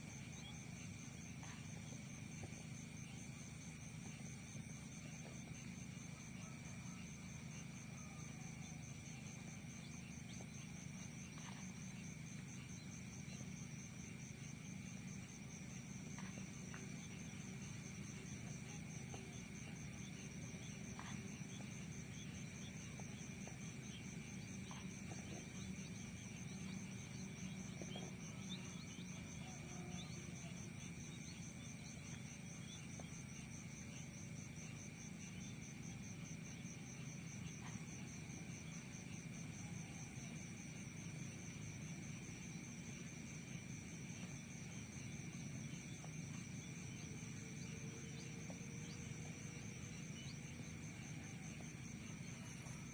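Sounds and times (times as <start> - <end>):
insects trilling: 0.0 - 52.9
low background hum: 0.0 - 52.9.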